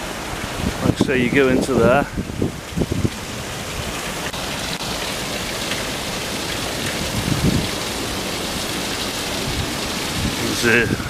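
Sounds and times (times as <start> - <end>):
wind blowing across microphone: 0.0 - 5.0, 5.6 - 11.0.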